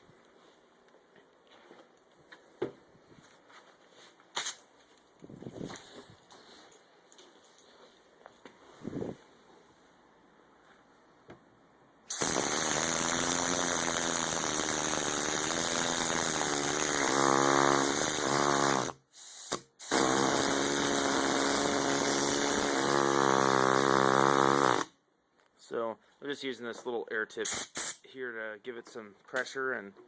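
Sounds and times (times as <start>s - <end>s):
compressed air hiss: 12.1s - 16.8s, 19.1s - 20.6s, 27.4s - 28.1s.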